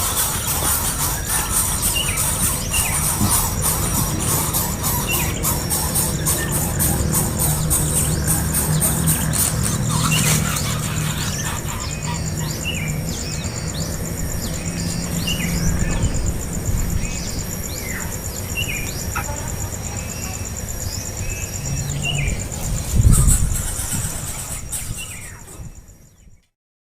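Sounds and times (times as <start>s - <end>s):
fast-pulsing insect trill: 0.0s - 26.2s
birds chirping: 0.0s - 26.4s.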